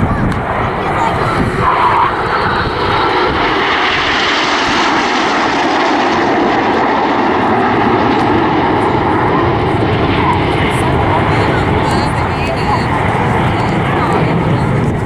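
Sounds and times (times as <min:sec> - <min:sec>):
jets passing: 0:00.0 - 0:15.0.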